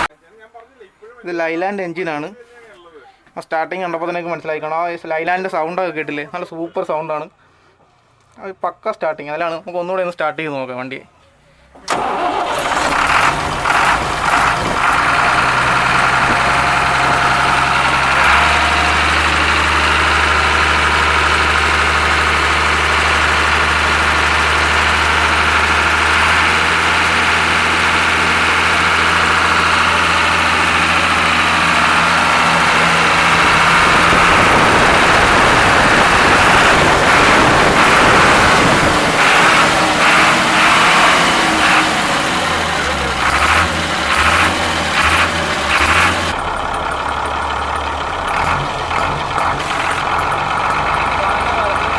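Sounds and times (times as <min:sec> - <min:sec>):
bus diesel engine idling: 0:00.0 - 0:00.2, 0:11.6 - 0:51.9.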